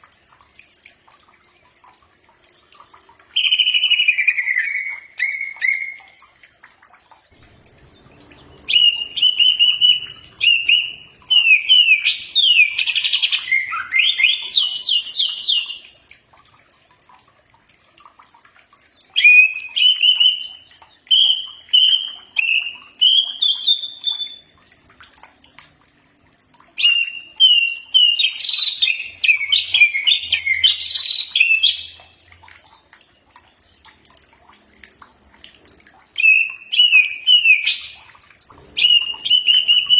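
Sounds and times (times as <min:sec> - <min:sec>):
bird singing whistled phrases: 0:03.4 - 0:06.2, 0:08.6 - 0:15.9, 0:19.2 - 0:24.5, 0:26.8 - 0:32.0, 0:36.2 - 0:39.9.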